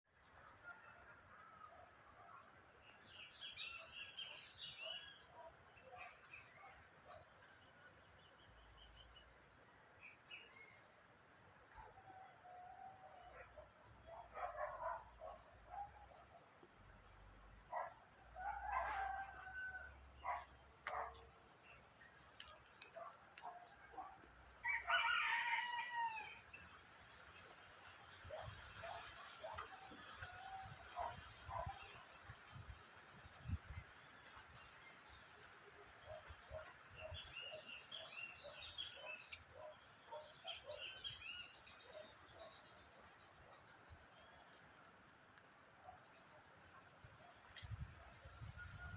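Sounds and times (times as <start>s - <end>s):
roosters crowing: 18.3s - 20.1s, 24.6s - 26.5s
small birds chirping: 33.3s - 48.3s.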